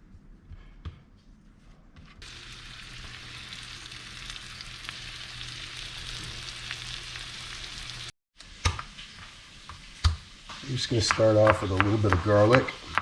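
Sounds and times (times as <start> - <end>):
fish sizzling in a frying pan: 2.2 - 11.0.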